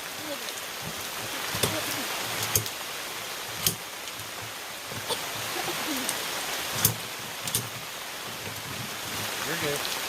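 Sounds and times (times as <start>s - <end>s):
heavy rain on a canopy: 0.0s - 10.0s
large drops tapping: 0.8s - 2.8s, 3.5s - 5.5s, 6.6s - 9.5s.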